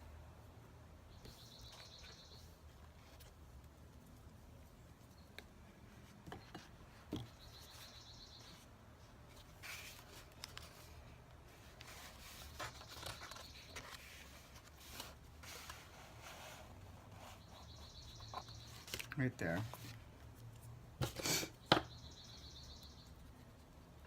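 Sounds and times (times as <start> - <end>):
paper rustling: 9.3 - 17.6.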